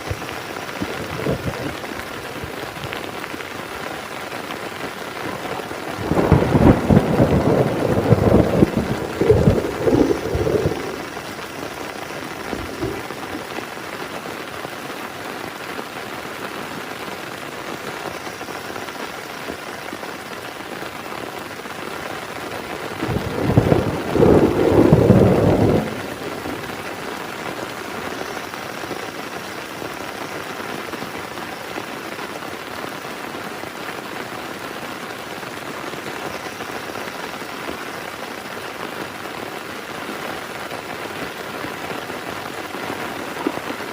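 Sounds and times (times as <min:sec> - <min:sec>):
thunder rumbling: 0:00.0 - 0:03.8, 0:04.9 - 0:13.7, 0:22.9 - 0:27.1
heavy rain falling: 0:00.0 - 0:43.9.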